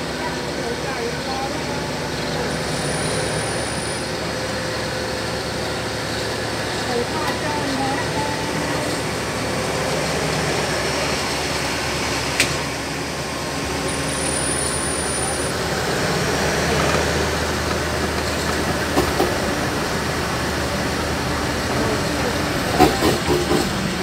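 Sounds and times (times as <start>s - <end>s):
train rumble: 0.0s - 24.0s
train wheels clacking: 16.7s - 19.6s, 22.6s - 24.0s.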